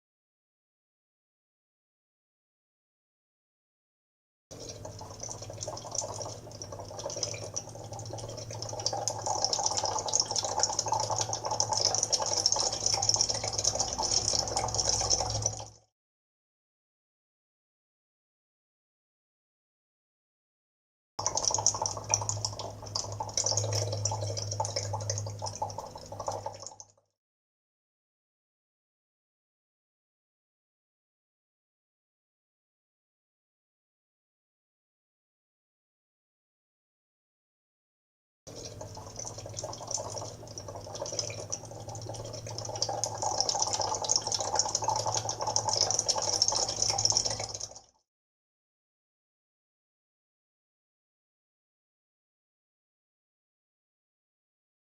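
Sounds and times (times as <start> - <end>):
water-like dripping and trickling: 4.6 - 15.8, 21.2 - 27.0, 38.5 - 48.0.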